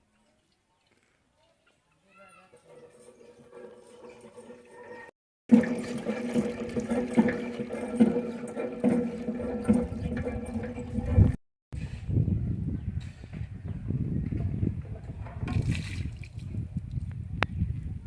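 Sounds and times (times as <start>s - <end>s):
water sloshing in a vessel: 5.5s - 11.4s, 15.3s - 16.7s
sharp splash or knock: 15.5s - 16.4s.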